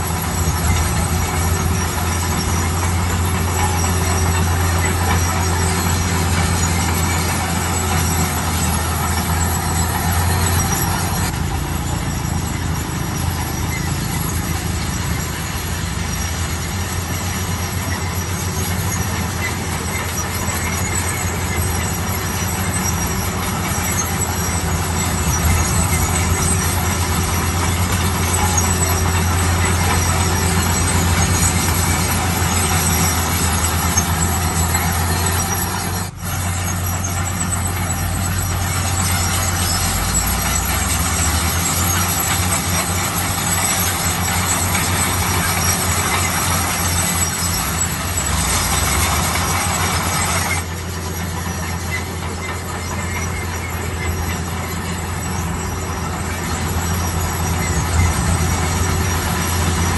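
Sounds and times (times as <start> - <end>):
diesel machine droning: 0.0 - 59.9.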